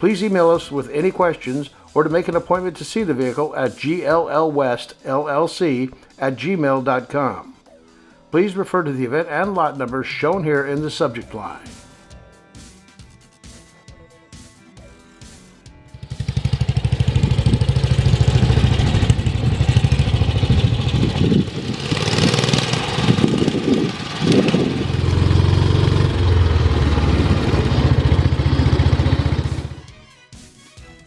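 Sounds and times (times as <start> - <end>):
motorcycle engine thumping: 16.0 - 29.8.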